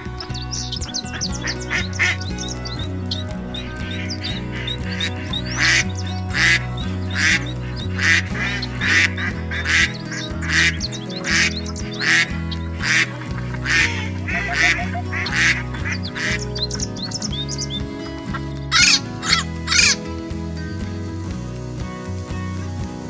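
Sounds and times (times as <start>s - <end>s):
background music: 0.0s - 23.0s
duck quacking: 1.3s - 2.8s, 3.6s - 16.4s.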